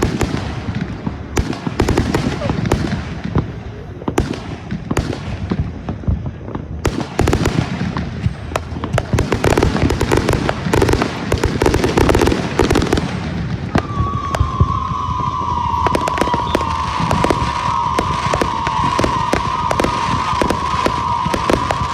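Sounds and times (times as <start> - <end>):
fireworks bangs and crackles: 0.0 - 21.9
high whistling tone: 13.7 - 21.9.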